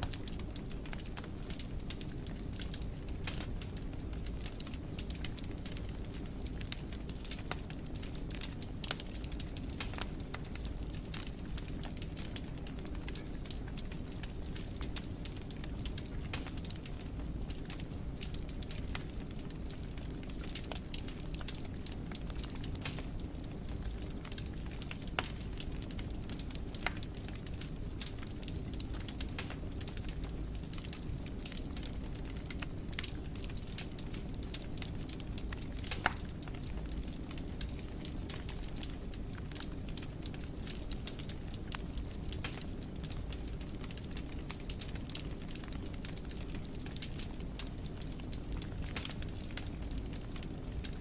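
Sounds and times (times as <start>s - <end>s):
fire crackling and popping: 0.0s - 51.0s.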